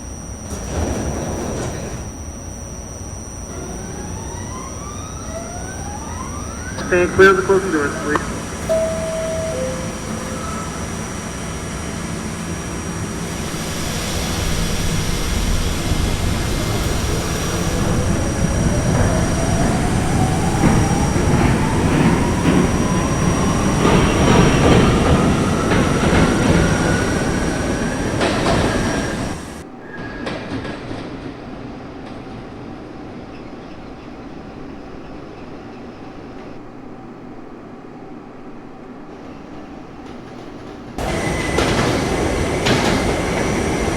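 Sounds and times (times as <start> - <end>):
subway train whine: 0.0 - 43.9
wheel clatter on rails: 14.9 - 32.6, 40.0 - 43.9.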